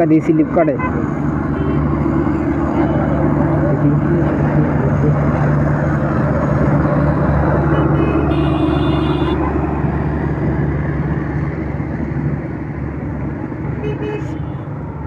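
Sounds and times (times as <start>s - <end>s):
traffic noise: 0.0s - 15.0s
high-pitched vehicle horn: 7.7s - 9.5s, 13.8s - 14.5s.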